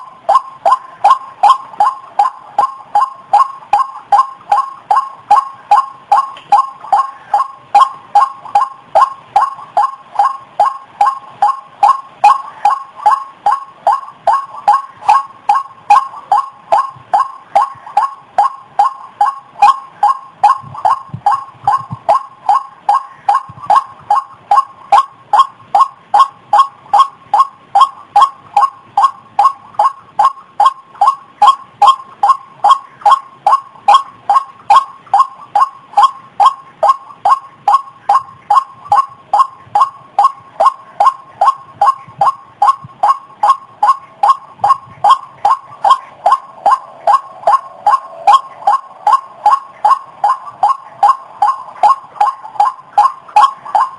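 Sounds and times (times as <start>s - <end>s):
waterhen calling: 0.0s - 53.9s.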